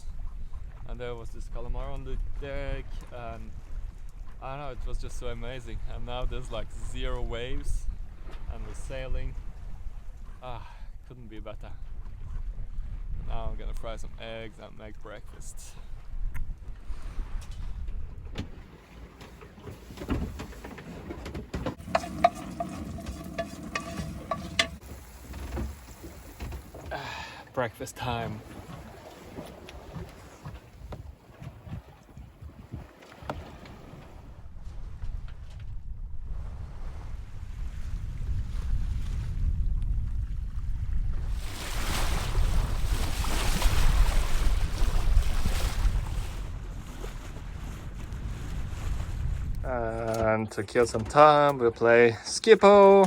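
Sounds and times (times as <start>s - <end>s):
water rushing along hull: 0.0s - 35.4s, 40.1s - 53.0s
wind buffeting microphone: 11.8s - 13.7s, 28.4s - 50.5s
utensil clinking against pan: 21.8s - 24.8s.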